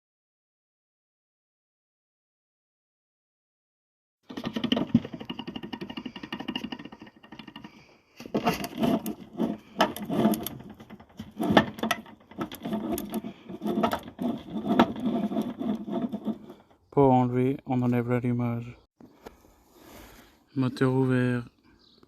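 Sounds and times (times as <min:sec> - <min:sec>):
power tool rattling: 0:04.3 - 0:16.8.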